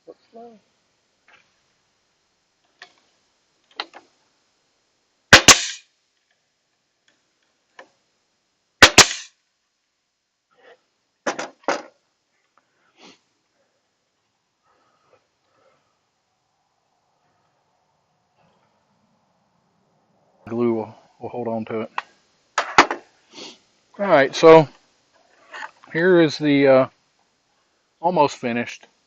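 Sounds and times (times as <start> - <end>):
nail gun firing: 5.3 - 5.8, 8.8 - 9.3.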